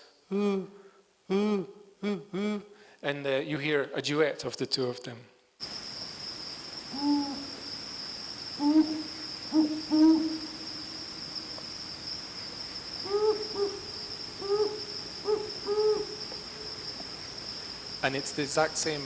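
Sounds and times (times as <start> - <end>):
high insect trill: 5.6 - 19.0
owls hooting: 6.8 - 11.5, 12.2 - 17.4.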